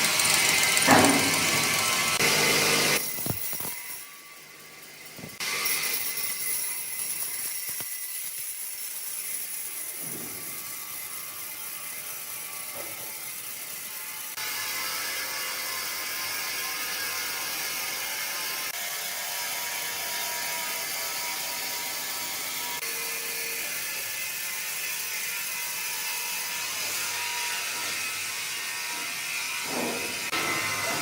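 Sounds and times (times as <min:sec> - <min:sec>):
wood-processing machinery whirring: 0:00.0 - 0:03.9.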